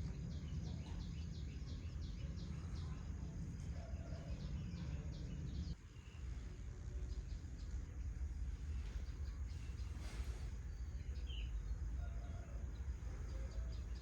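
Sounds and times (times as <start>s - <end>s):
birds chirping: 0.0s - 14.0s
low outdoor rumble: 0.0s - 14.0s.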